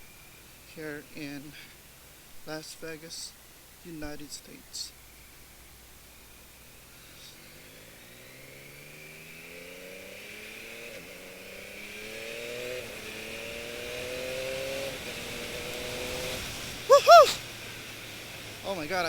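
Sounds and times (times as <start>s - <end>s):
motorcycle engine accelerating: 6.2s - 18.9s.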